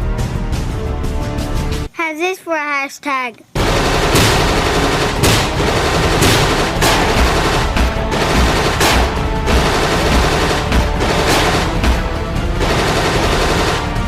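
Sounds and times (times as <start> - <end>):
background music with steady beat: 0.0 - 2.0, 3.6 - 14.0
rapid gunfire: 3.6 - 14.0.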